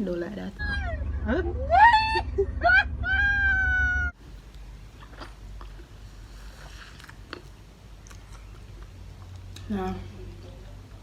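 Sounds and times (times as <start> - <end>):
drawn-out falling voice: 0.6 - 4.2
person chewing and crunching: 4.4 - 9.7.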